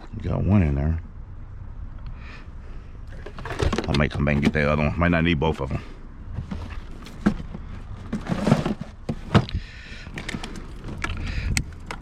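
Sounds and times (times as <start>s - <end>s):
low steady rumble: 0.0s - 12.0s
knocks and clunks of gear: 3.1s - 4.7s, 6.3s - 12.0s
rustling: 6.3s - 9.5s.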